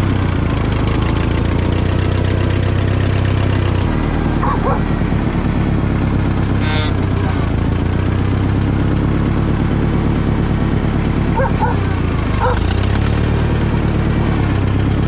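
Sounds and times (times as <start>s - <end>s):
tractor engine idling: 0.0s - 15.0s
dog yipping: 4.4s - 4.8s, 11.4s - 12.7s.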